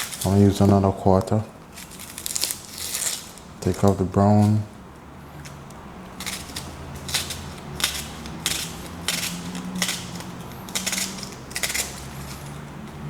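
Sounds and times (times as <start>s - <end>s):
knife slicing onion on board: 6.1s - 13.0s.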